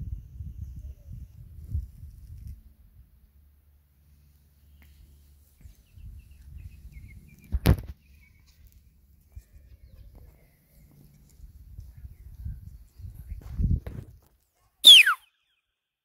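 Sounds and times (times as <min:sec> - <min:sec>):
small birds chirping: 0:04.6 - 0:11.2.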